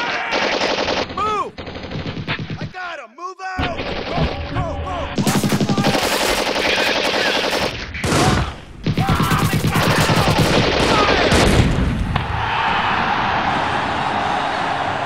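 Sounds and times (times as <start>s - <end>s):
automatic gunfire bursts: 0.3s - 2.7s, 5.2s - 7.8s, 8.8s - 11.5s.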